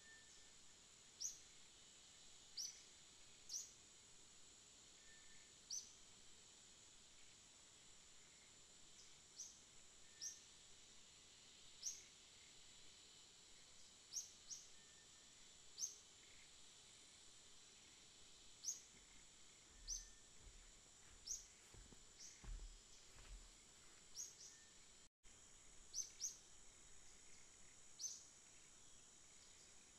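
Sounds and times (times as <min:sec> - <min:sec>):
faint steady hiss: 0:00.0 - 0:29.9
small bird chirping: 0:01.2 - 0:01.6, 0:02.6 - 0:03.8, 0:05.1 - 0:06.0, 0:09.0 - 0:10.5, 0:11.8 - 0:12.2, 0:13.6 - 0:16.6, 0:18.6 - 0:23.4, 0:24.1 - 0:24.8, 0:25.9 - 0:29.9.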